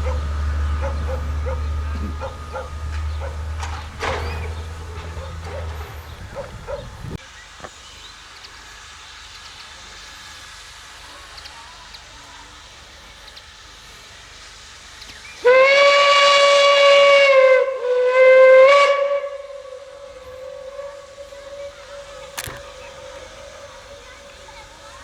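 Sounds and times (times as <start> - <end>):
steam locomotive whistle: 0.0 - 7.1, 15.3 - 25.0
sharp click: 22.4 - 22.7.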